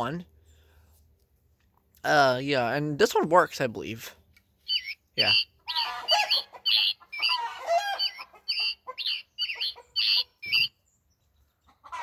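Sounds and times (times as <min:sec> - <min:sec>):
toy bird chirping song: 0:04.6 - 0:10.8.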